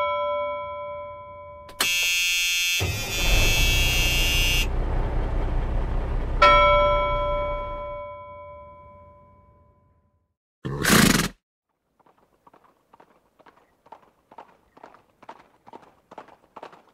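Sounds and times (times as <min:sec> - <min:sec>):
harsh buzzing electronic tone: 0:01.7 - 0:04.7
low rumble: 0:02.9 - 0:08.1
bell-like chime: 0:06.4 - 0:10.2.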